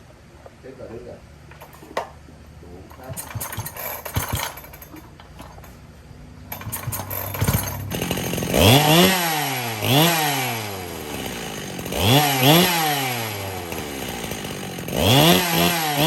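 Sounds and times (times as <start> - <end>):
clicks and clatter: 1.5 - 2.2, 2.9 - 5.8, 6.5 - 8.0
chainsaw starting and revving: 2.9 - 5.8, 6.4 - 16.0.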